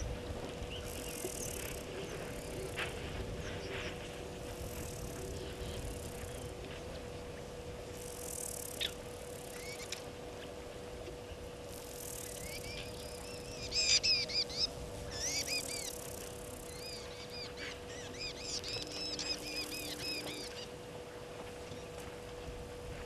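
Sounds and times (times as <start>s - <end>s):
faint steady hum: 0.0s - 23.0s
bird singing: 8.6s - 10.0s, 12.2s - 20.8s.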